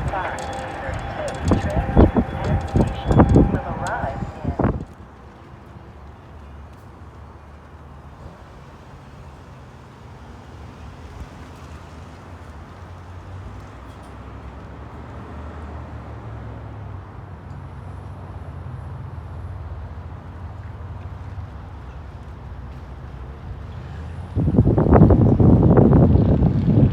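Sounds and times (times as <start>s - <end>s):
low vehicle rumble: 0.0s - 5.0s.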